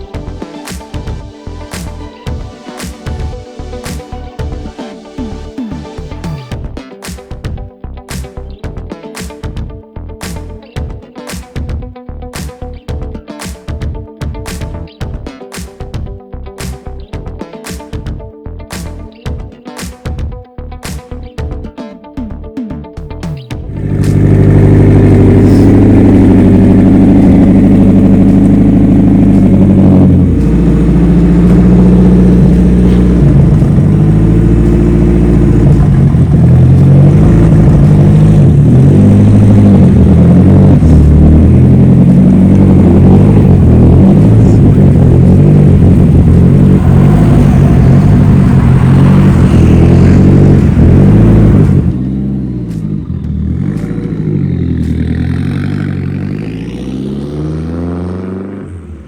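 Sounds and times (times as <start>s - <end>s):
car engine revving: 23.3s - 59.0s.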